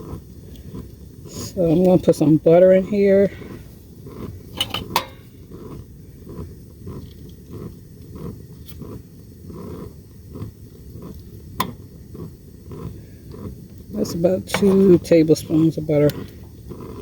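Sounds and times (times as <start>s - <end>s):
butter put into a pot: 4.5s - 5.4s
utensil clicking against pot: 4.5s - 6.4s, 7.0s - 17.0s.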